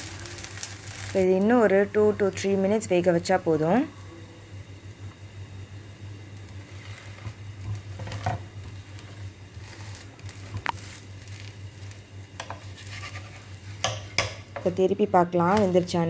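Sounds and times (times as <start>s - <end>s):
pancake sizzling in oil: 0.0s - 2.4s, 6.3s - 14.5s
small crackles: 0.0s - 2.5s, 6.3s - 13.6s
steady low hum: 0.0s - 16.0s.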